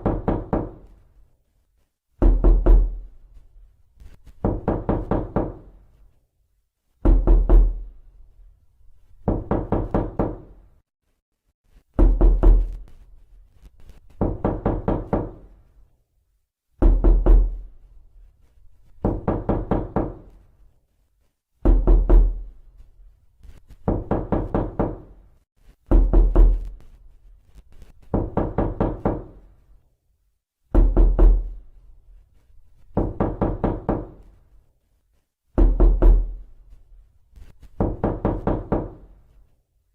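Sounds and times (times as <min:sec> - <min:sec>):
knocking on a door: 0:00.0 - 0:00.9, 0:02.2 - 0:03.1, 0:04.4 - 0:05.8, 0:07.0 - 0:07.9, 0:09.2 - 0:10.6, 0:12.0 - 0:12.8, 0:14.1 - 0:15.5, 0:16.8 - 0:17.6, 0:19.0 - 0:20.4, 0:21.6 - 0:22.5, 0:23.8 - 0:25.2, 0:25.9 - 0:26.8, 0:28.0 - 0:29.4, 0:30.7 - 0:31.6, 0:32.9 - 0:34.3, 0:35.6 - 0:36.4, 0:37.8 - 0:39.1.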